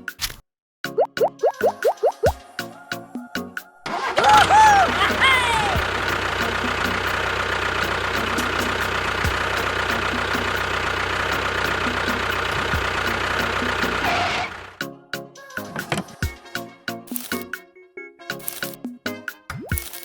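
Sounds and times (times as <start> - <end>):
engine running with low rumble: 3.9 - 14.8.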